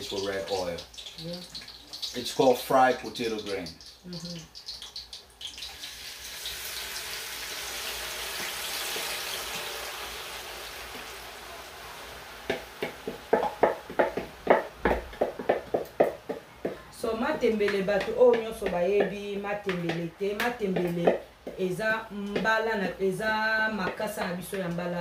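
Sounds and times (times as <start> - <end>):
leaves sizzling in hot oil: 0.0 - 16.3
wooden spoon knocking and scraping: 12.5 - 21.6.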